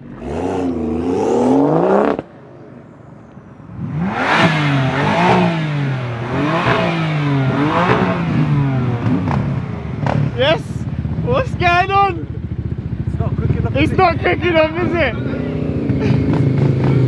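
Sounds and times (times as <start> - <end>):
car engine revving: 0.0 - 2.4, 3.7 - 12.0.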